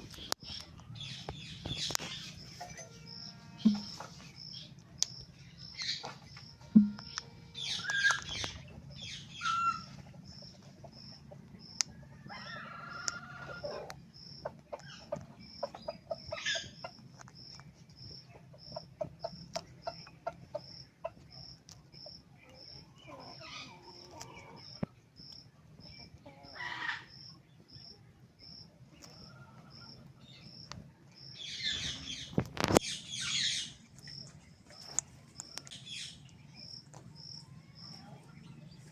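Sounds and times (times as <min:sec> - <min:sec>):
repeating high-pitched chirp: 0:02.2 - 0:04.2, 0:06.6 - 0:08.6.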